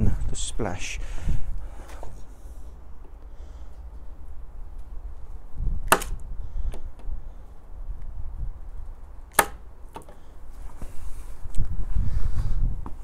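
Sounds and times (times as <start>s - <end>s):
sharp clicks: 5.8s - 7.1s, 9.3s - 10.1s.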